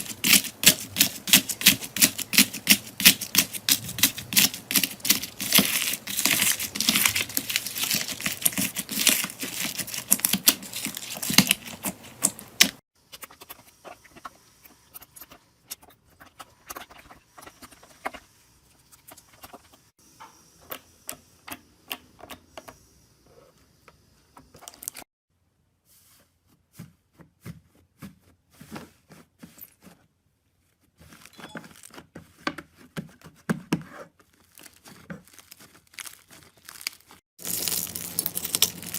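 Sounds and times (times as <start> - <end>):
slime crackling and popping: 0.0 - 12.8, 34.5 - 38.9.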